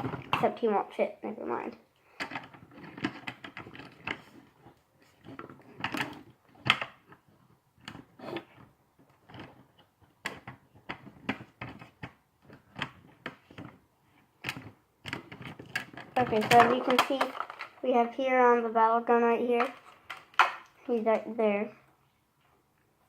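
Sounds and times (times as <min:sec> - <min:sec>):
plastic toy parts clacking: 0:02.2 - 0:13.8, 0:14.4 - 0:17.9, 0:19.5 - 0:21.3.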